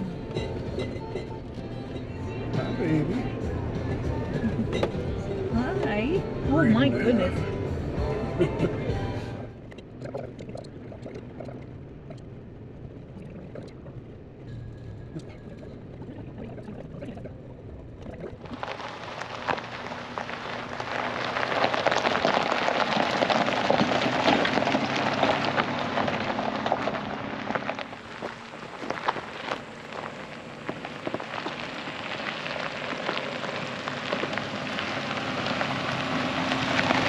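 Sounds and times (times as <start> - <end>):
low steady hum: 0.0 - 37.0
heavy rain falling: 18.5 - 37.0.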